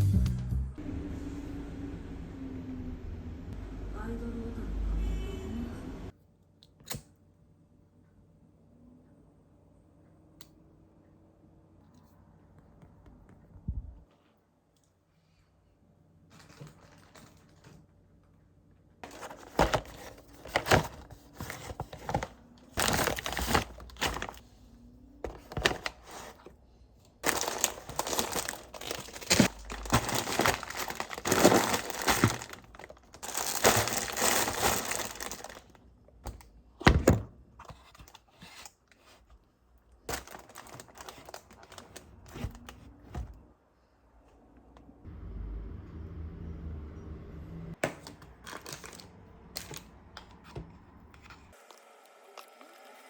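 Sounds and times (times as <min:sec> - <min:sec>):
crinkling and rustling handling: 0:16.2 - 0:43.5, 0:47.8 - 0:51.8.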